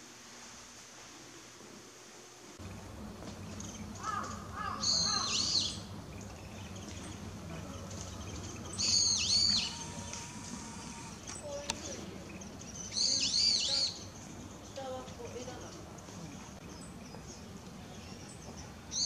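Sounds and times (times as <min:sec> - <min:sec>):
faint low rumble: 0:02.5 - 0:13.0
low bird notes: 0:02.6 - 0:19.0
high-pitched swooping bird calls: 0:03.9 - 0:05.9, 0:08.6 - 0:11.3.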